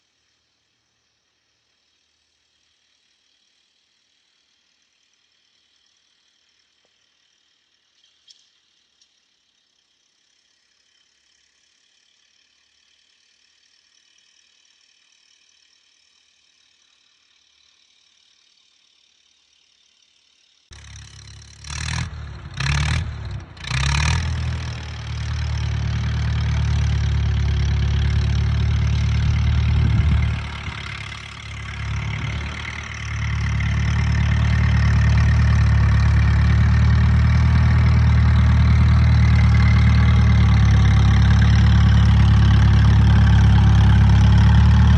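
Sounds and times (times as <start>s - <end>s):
faint hiss: 0.0s - 21.3s
tractor engine rumbling: 20.7s - 44.9s.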